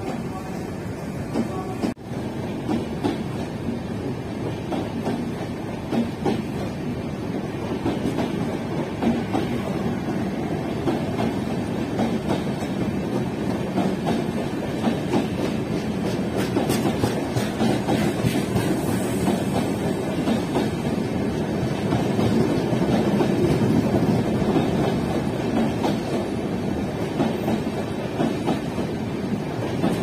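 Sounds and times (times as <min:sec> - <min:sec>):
train wheels clattering over joints: 0:10.8 - 0:21.0.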